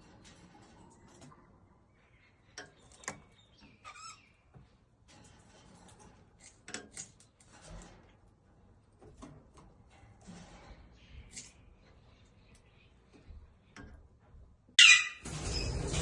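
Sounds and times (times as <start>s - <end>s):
parrot squeaky chirp: 3.8s - 4.3s, 14.8s - 15.7s.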